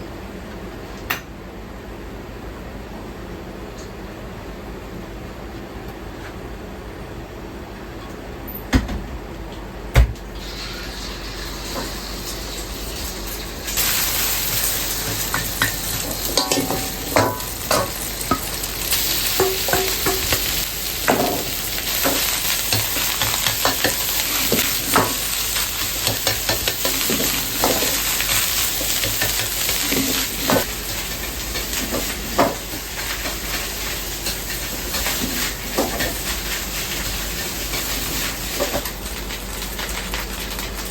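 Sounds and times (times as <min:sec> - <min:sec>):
loud sizzle in pan: 0:10.2 - 0:40.9.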